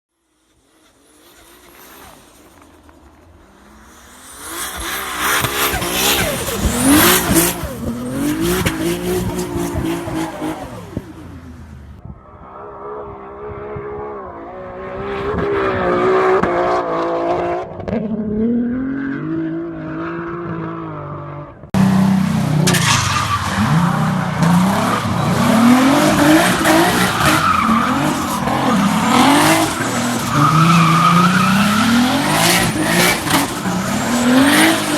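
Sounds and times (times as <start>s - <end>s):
car engine revving: 0.4s - 12.0s, 21.8s - 34.9s
tyre squeal: 21.8s - 34.9s.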